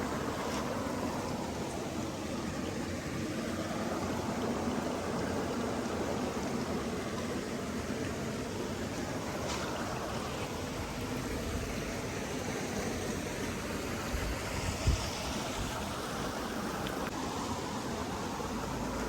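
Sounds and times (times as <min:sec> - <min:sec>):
flowing water rushing: 0:00.0 - 0:19.0.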